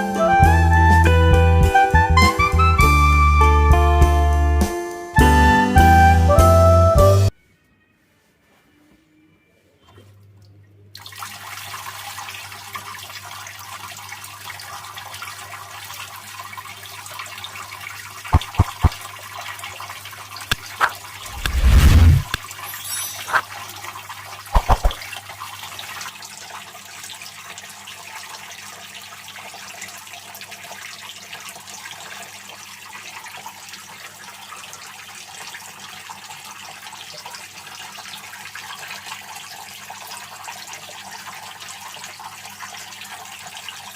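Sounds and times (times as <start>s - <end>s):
sharp knocks: 18.3s - 19.0s, 24.6s - 25.0s
fountain water splashing: 18.4s - 19.0s.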